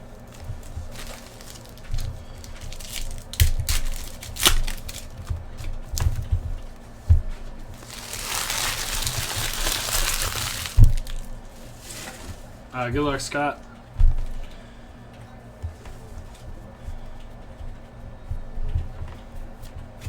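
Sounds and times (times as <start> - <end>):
wrapper crinkling and tearing: 0.6 - 5.3, 7.8 - 12.2.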